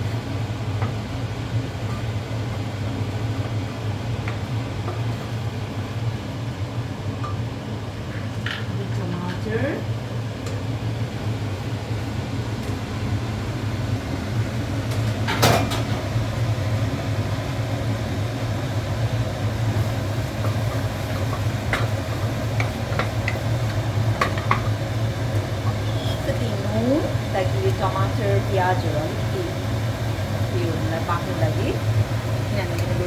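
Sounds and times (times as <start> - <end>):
low mechanical hum: 0.0 - 33.0.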